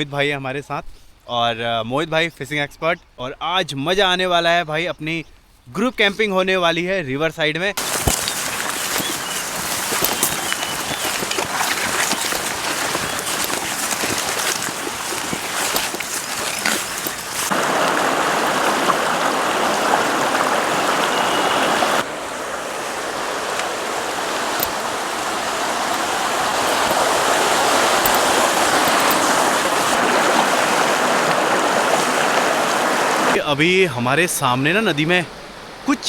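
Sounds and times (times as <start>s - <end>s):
river water rushing over stones: 7.8s - 33.4s.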